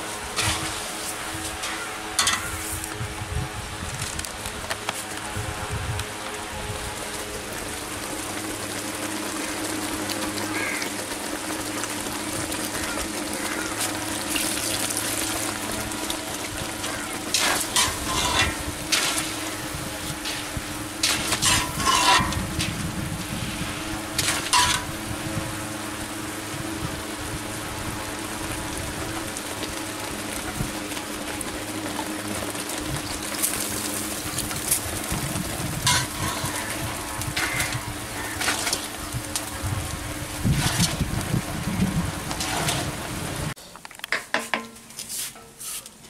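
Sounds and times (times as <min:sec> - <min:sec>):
food sizzling in oil: 0:07.4 - 0:30.8, 0:31.6 - 0:43.6
metal ladle scraping pan: 0:17.3 - 0:19.2, 0:20.3 - 0:22.4, 0:24.2 - 0:24.9, 0:35.9 - 0:36.7.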